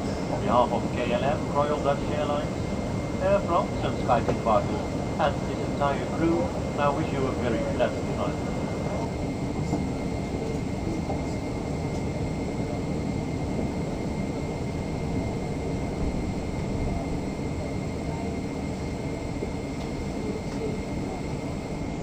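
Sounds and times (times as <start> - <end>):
airliner cabin rush and rumble: 0.0 - 22.0.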